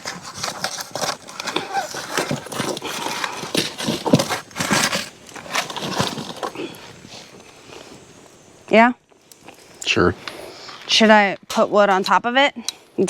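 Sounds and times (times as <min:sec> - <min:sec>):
wood and coals knocking and scraping: 0:00.0 - 0:12.8.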